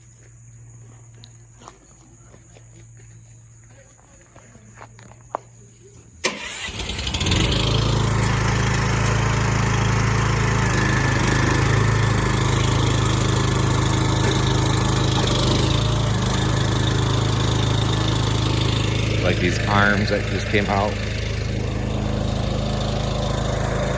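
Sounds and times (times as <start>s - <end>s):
truck engine and hydraulic lift: 6.2s - 23.9s.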